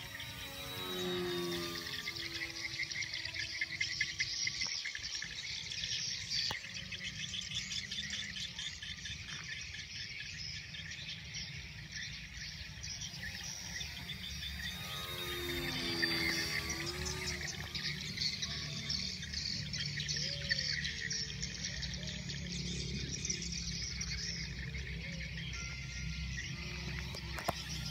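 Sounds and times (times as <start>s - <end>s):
insects chirping: 0.0s - 5.3s, 12.7s - 20.3s
faint gliding motor tone: 0.0s - 27.9s.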